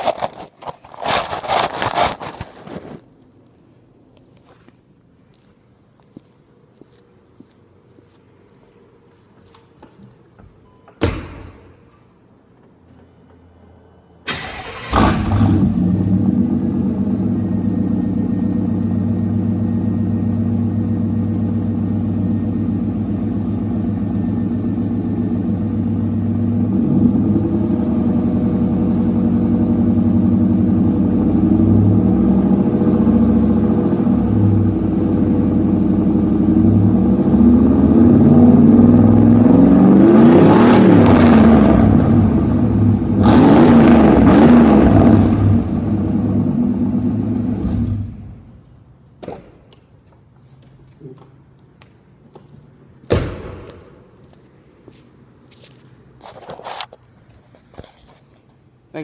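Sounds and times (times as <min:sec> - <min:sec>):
truck engine starting and idling: 0:14.2 - 0:48.6
engine revving: 0:14.3 - 0:18.4, 0:26.5 - 0:48.3.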